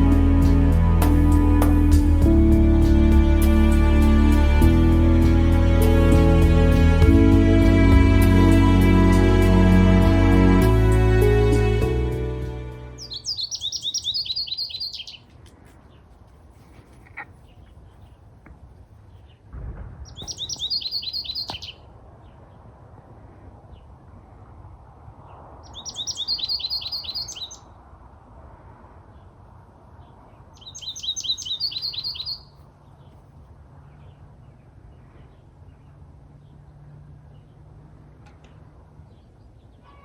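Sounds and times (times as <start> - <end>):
goldfinch twittering: 13.0 - 15.2, 20.2 - 21.8, 25.7 - 27.6, 30.6 - 32.5.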